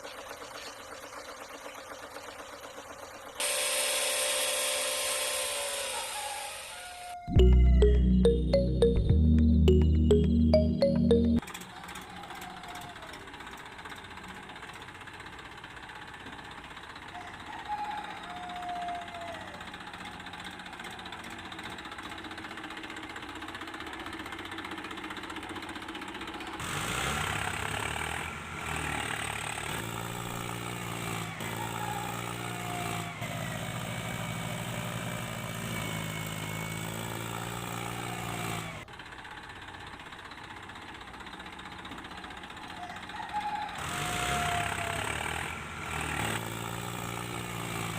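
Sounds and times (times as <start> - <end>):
tractor engine knocking: 0.0 - 3.4, 11.5 - 17.1, 19.6 - 26.6, 38.8 - 43.1
louder engine running: 22.7 - 40.0.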